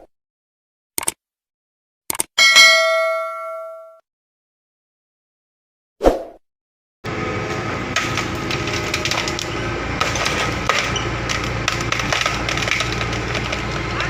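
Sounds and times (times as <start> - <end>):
short chime: 2.4 - 4.0
excavator diesel engine running: 7.1 - 14.0.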